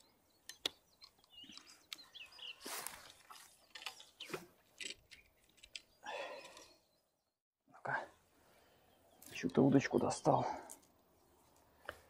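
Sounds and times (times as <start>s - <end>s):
faint bird chirps: 0.0s - 4.4s
rustles from handling rod: 2.6s - 4.5s.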